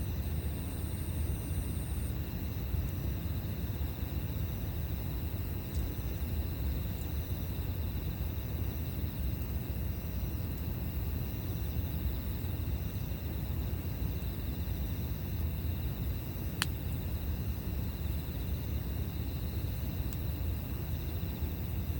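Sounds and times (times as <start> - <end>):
insects trilling: 0.0 - 21.9
campfire crackling: 16.0 - 21.4.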